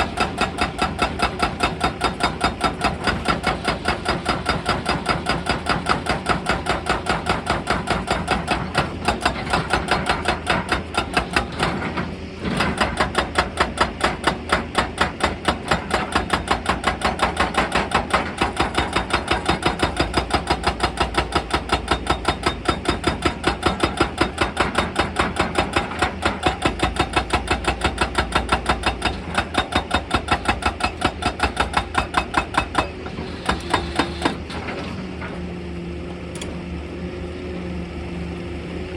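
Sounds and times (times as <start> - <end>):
hydraulic breaker hammering rock: 0.0 - 34.9
excavator engine: 0.0 - 38.9.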